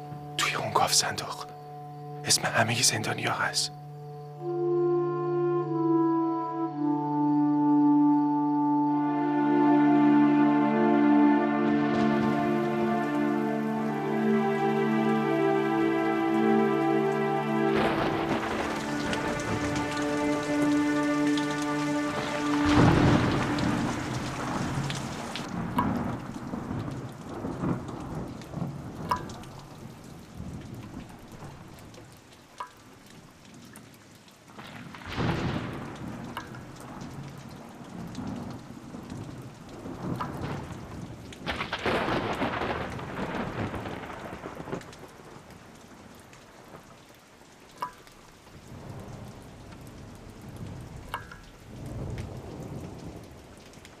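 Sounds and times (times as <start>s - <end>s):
heavy rain falling: 0.0s - 3.8s, 8.9s - 54.0s
thunderclap: 17.8s - 20.7s, 21.4s - 31.6s, 34.6s - 45.4s
rolling thunder: 17.8s - 31.8s, 34.6s - 46.0s.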